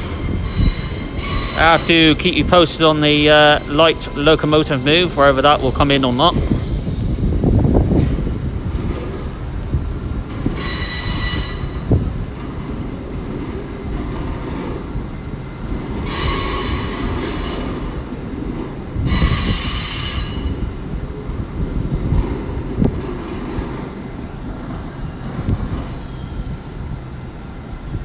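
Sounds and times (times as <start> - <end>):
train wheels squealing on rails: 0.0 - 9.2, 10.3 - 12.1, 15.6 - 20.9, 22.0 - 27.2
low rumble of slow train: 0.0 - 28.0.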